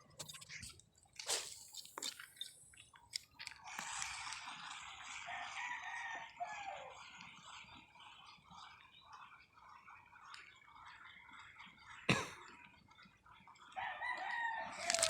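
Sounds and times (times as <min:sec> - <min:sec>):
water splashing and dripping: 0:01.2 - 0:02.8.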